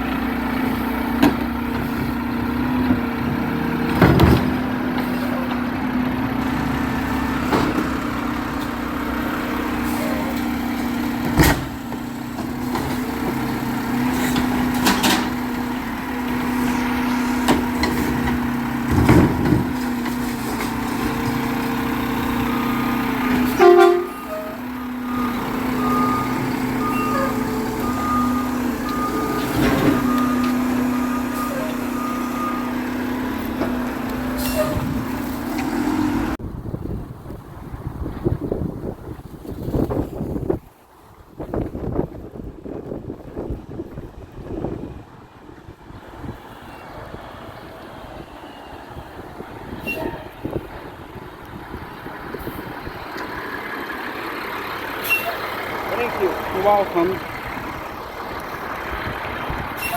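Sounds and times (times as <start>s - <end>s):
garbage truck engine running: 0.0s - 40.6s, 41.4s - 59.9s.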